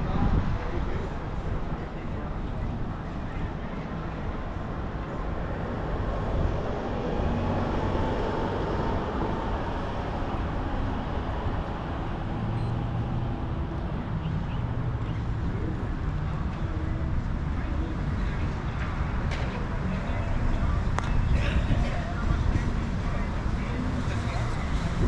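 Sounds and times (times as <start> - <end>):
road traffic noise: 0.0 - 25.0.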